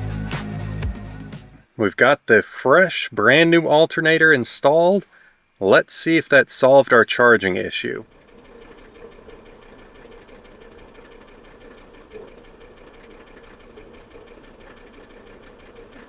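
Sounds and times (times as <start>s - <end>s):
car engine idling: 7.2s - 16.0s.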